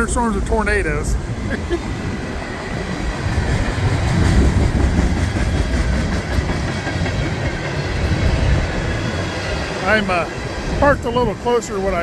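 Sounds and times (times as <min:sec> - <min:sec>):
freight train rumbling past: 0:00.0 - 0:12.0
wheels clicking over rail joints: 0:02.0 - 0:10.8.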